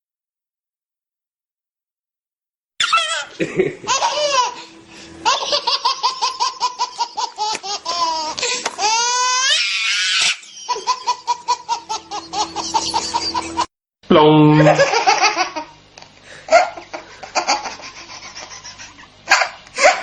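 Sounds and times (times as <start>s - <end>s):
high-pitched laughter: 2.8s - 13.7s, 14.5s - 15.8s, 16.5s - 20.0s.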